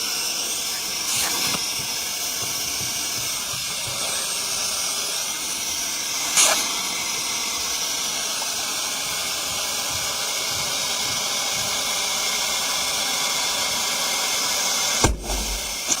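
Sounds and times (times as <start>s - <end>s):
handheld vacuum cleaner hissing: 0.0s - 16.0s
short knock: 15.0s - 16.0s.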